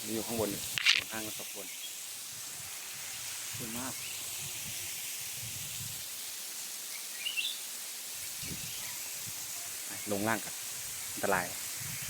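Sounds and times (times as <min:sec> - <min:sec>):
waterfall rushing hiss: 0:00.0 - 0:12.0
bird call chirping: 0:06.9 - 0:07.6.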